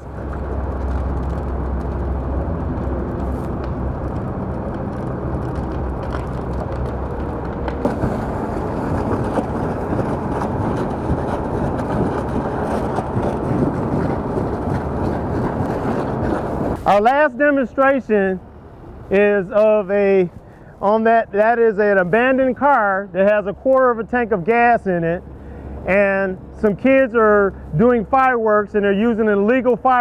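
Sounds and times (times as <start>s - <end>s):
fire rushing and crackling: 0.0s - 20.8s.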